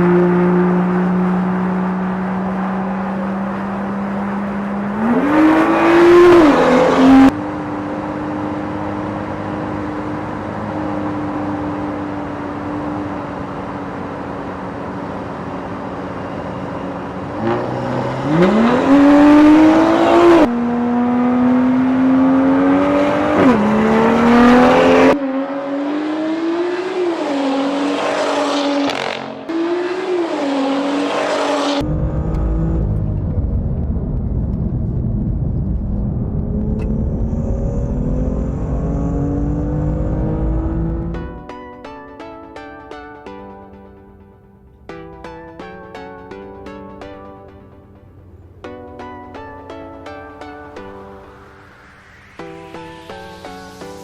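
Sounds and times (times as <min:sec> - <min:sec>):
car engine accelerating: 0:00.0 - 0:41.4.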